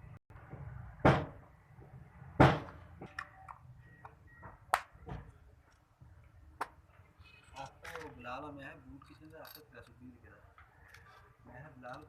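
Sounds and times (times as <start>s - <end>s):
tools and metal parts clinking: 8.9s - 10.0s.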